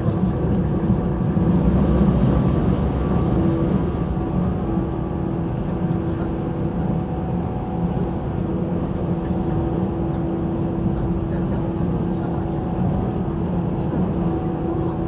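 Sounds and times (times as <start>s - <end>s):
humming tone from running gear: 0.0s - 15.0s
train wheels rumbling on rail: 0.0s - 15.0s.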